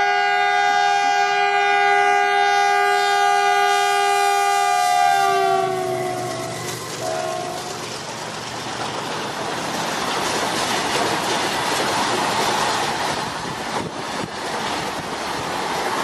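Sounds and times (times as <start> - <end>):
locomotive horn blast: 0.0 - 7.8
train running noise: 0.0 - 16.0.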